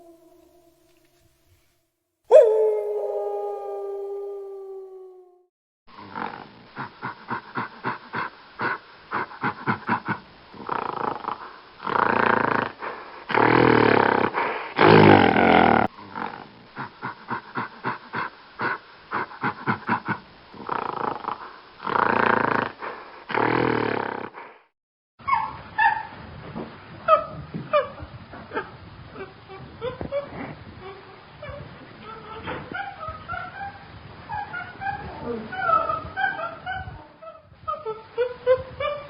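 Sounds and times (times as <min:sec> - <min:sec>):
wild animal roaring: 0:00.0 - 0:01.2, 0:14.8 - 0:15.9.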